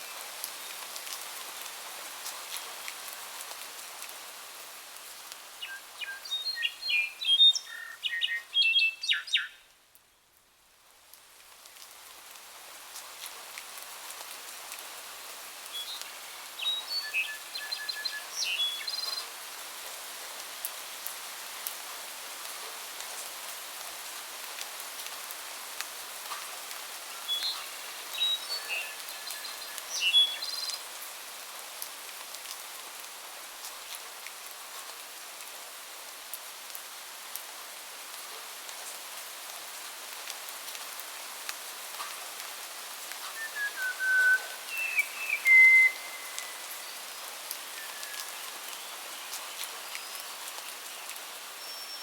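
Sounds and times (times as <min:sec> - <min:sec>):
rain hiss: 0:00.0 - 0:52.0.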